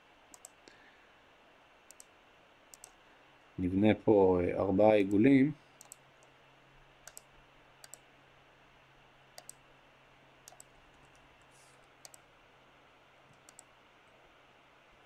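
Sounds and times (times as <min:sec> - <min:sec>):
background hum: 0:00.0 - 0:15.0
computer mouse clicks: 0:00.3 - 0:00.6, 0:01.9 - 0:02.1, 0:02.7 - 0:03.0, 0:05.8 - 0:06.3, 0:07.0 - 0:08.0, 0:09.4 - 0:09.6, 0:10.4 - 0:12.3, 0:13.3 - 0:13.7.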